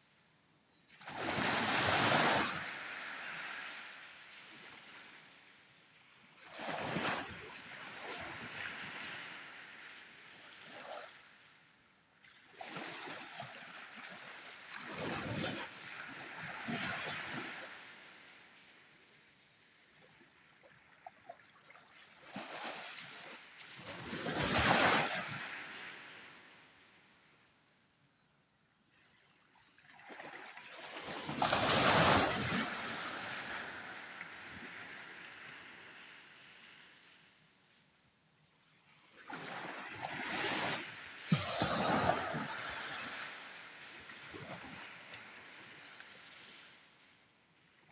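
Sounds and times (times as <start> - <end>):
sea waves breaking: 30.1 - 37.1, 39.1 - 47.0
wave crashing on shore: 40.4 - 45.0.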